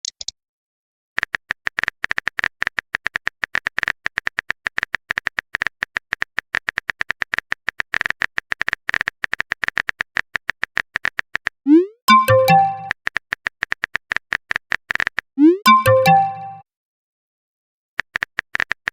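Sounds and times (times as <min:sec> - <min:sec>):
electronic typing clicks: 0:01.2 - 0:16.6
synth tones: 0:11.7 - 0:12.9, 0:15.4 - 0:16.6.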